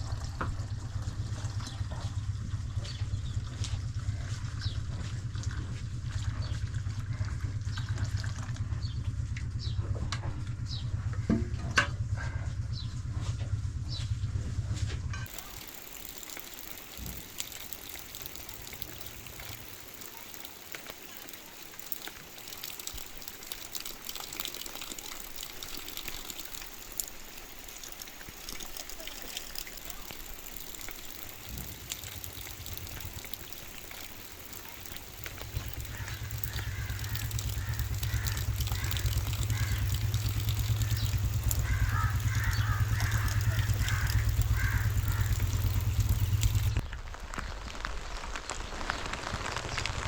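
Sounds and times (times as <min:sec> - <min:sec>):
low rumble: 0:00.0 - 0:15.2, 0:35.2 - 0:47.0
heavy rain: 0:15.3 - 0:50.0.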